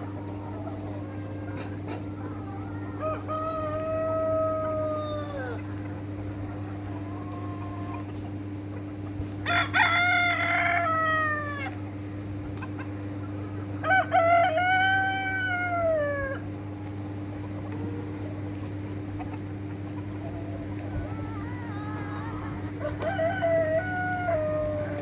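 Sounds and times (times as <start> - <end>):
steady low hum: 0.0 - 25.0
rooster crowing: 2.7 - 5.6, 9.4 - 11.8, 13.8 - 16.4, 21.1 - 25.0.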